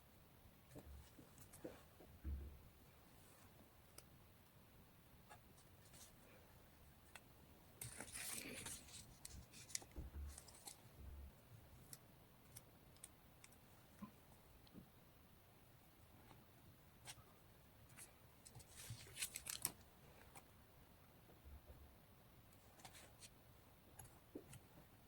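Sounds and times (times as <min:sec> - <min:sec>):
paper rustling: 0:07.8 - 0:10.8, 0:18.0 - 0:19.8.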